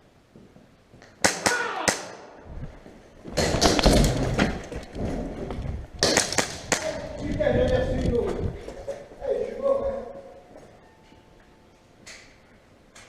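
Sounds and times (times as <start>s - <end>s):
airsoft gun shots: 1.2s - 2.2s, 6.0s - 7.0s
rustling movement noise: 2.4s - 13.0s.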